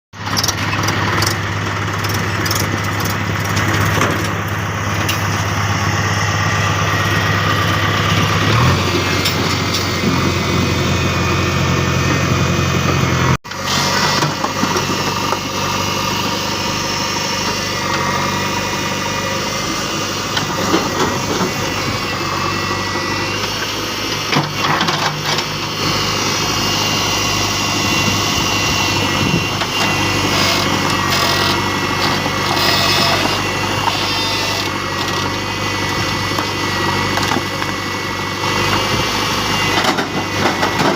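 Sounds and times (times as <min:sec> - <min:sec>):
diesel engines running: 0:00.2 - 0:40.9.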